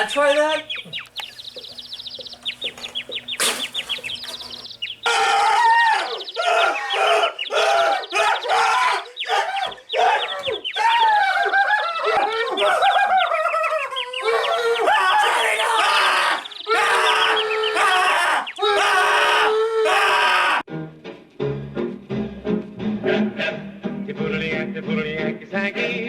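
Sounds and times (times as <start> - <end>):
faint bird chirping: 0.0 - 18.8
loud bird calls rising and falling: 0.0 - 20.6.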